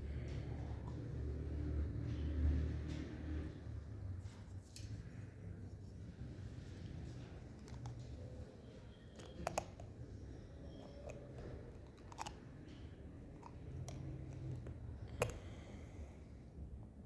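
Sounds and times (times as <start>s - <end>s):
sharp clicks of carving tool: 13.4s - 16.0s.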